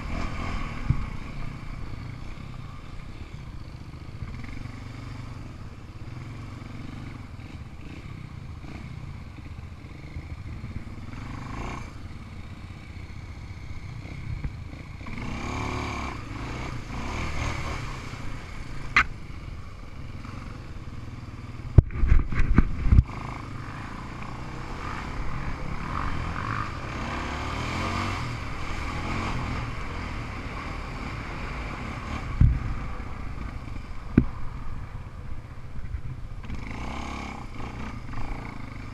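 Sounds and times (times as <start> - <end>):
off-road vehicle engine revving: 0.0 - 2.5, 6.1 - 10.2, 10.8 - 12.0, 13.8 - 19.1, 22.0 - 33.8, 36.4 - 38.9.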